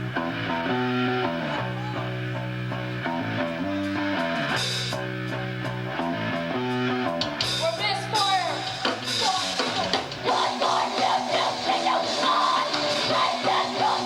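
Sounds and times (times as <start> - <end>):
bass notes: 0.0 - 14.0
electric guitar: 0.0 - 14.0
drum kit with cymbals: 3.8 - 14.0.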